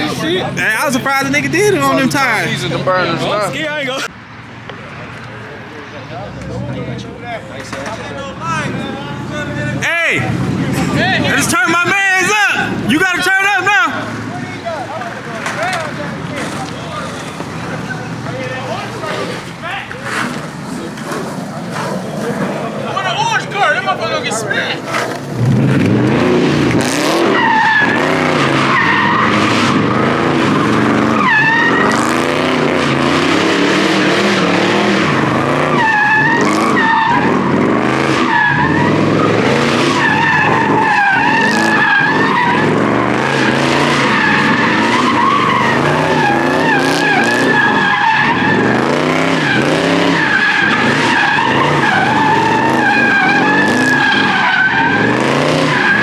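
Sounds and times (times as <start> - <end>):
car engine revving: 0.0 - 56.0
tires squealing: 0.0 - 56.0.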